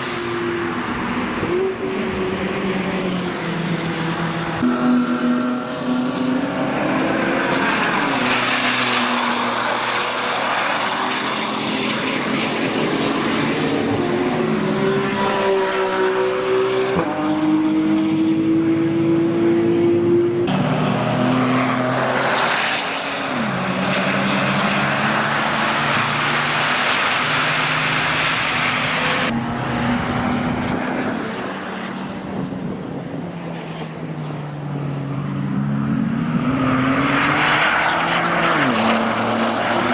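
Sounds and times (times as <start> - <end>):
car engine accelerating through gears: 4.1 - 22.6.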